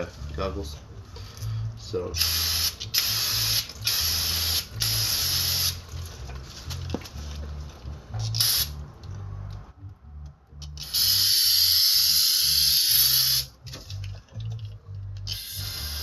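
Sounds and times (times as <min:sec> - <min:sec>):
aerosol can spraying: 0:02.2 - 0:05.8, 0:08.3 - 0:08.8, 0:10.8 - 0:13.5, 0:15.3 - 0:16.0.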